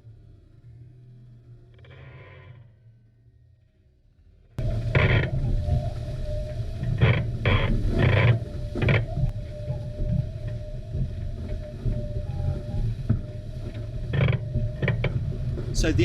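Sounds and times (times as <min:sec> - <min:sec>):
steady humming tone: 0:04.6 - 0:16.0
wind buffeting microphone: 0:04.6 - 0:16.0.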